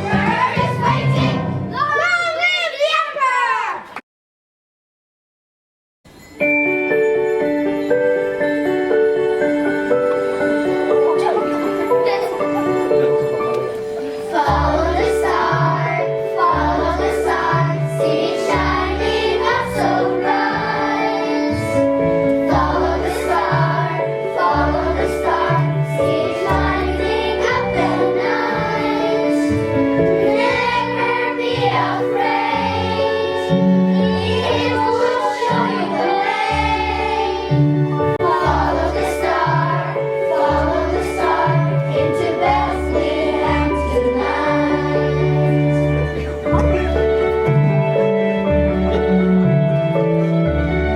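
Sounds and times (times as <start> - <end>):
children's choir singing: 0.0 - 1.7, 8.9 - 47.8.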